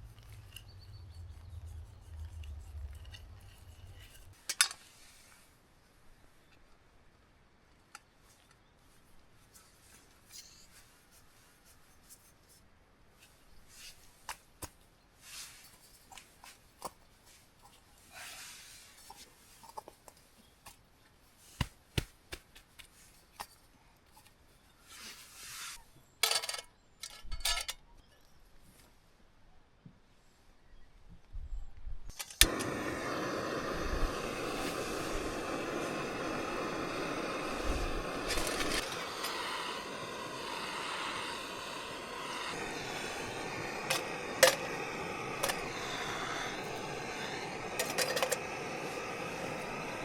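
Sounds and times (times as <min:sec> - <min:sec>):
knife scraping: 0:00.0 - 0:04.4.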